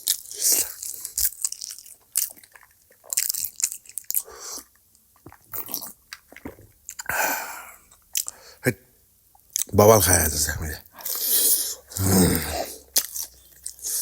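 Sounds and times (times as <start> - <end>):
crunchy bites of food: 0.0 - 7.1, 11.0 - 14.0
soft chewing: 0.0 - 8.6, 9.3 - 9.7, 10.8 - 14.0.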